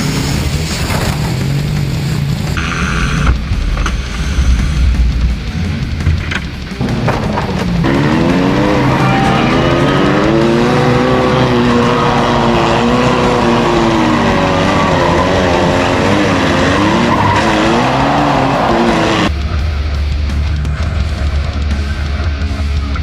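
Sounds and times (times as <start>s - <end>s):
car engines revving: 0.0s - 22.9s
tires squealing and skidding: 6.9s - 19.3s.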